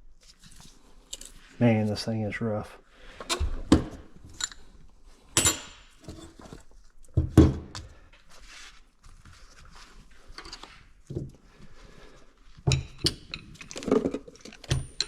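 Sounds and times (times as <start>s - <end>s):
metal engine parts clinking: 12.8s - 15.0s.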